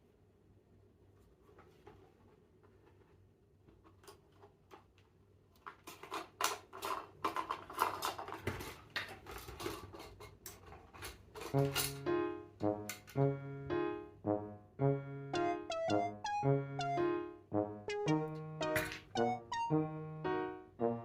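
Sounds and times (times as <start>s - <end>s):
light clattering and rattling: 1.5s - 12.0s.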